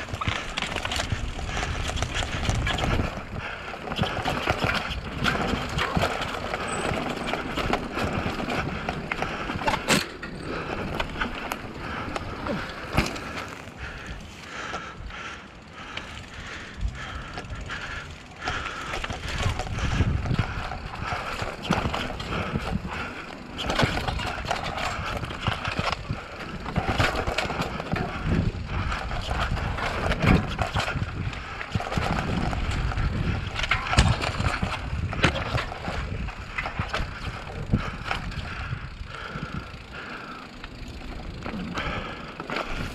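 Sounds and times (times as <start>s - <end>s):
tyres on dirt and stone: 0.0s - 42.9s
chain and frame rattle: 3.9s - 11.6s.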